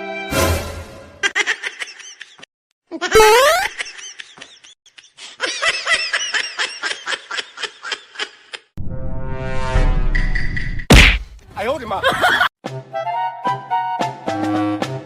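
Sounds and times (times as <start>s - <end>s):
bursts of laughter: 12.0s - 12.5s.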